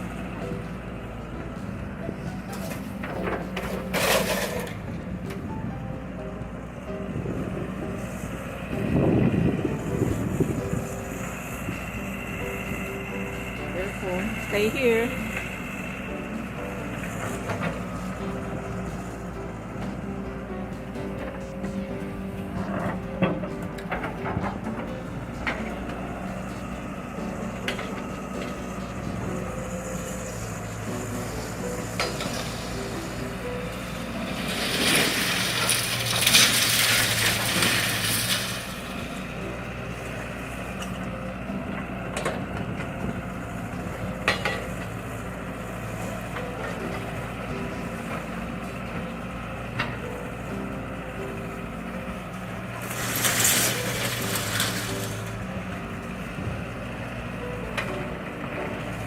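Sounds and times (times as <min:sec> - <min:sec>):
excavator engine running: 0:00.0 - 0:59.0
metal scraping and crashing: 0:02.3 - 0:05.1, 0:16.2 - 0:41.1, 0:51.4 - 0:56.7.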